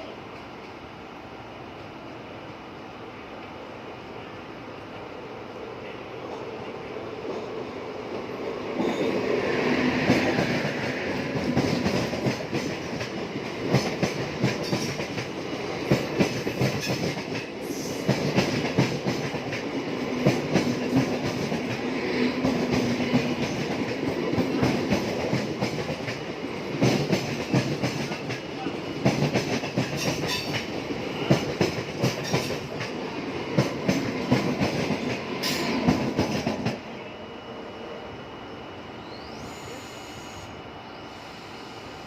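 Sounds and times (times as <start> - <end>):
train wheels clicking over rail joints: 10.0 - 36.8.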